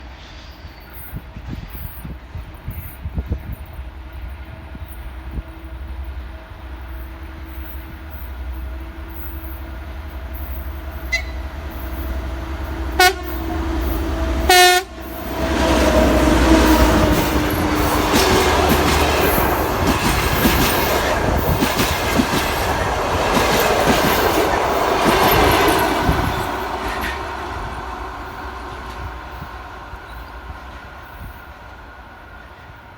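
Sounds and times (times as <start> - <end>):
locomotive engine humming: 3.8 - 32.9
train horn blasts: 10.9 - 19.4.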